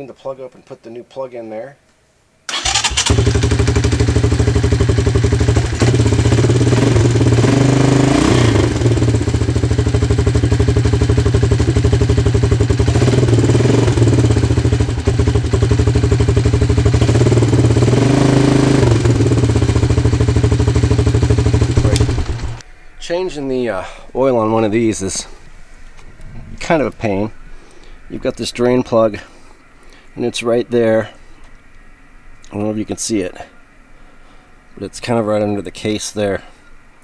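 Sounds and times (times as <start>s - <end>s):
atv engine running: 2.5s - 22.6s.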